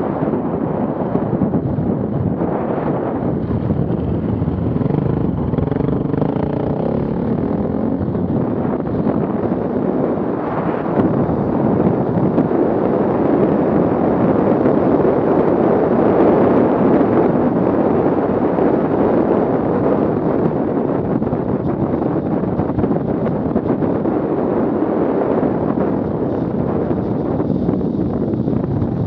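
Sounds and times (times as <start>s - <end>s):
off-road vehicle engine running: 3.0s - 13.9s.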